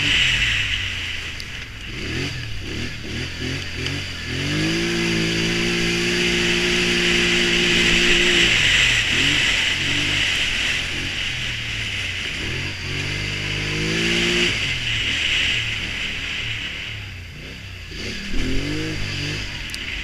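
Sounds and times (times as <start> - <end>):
atv engine revving: 0.0 - 20.0.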